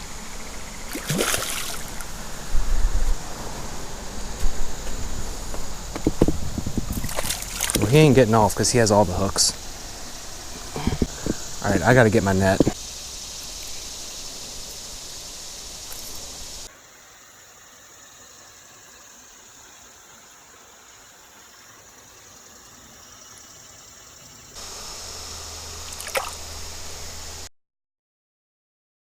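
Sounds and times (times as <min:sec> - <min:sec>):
creek water trickling: 0:00.4 - 0:02.6, 0:06.8 - 0:24.2, 0:25.8 - 0:26.6.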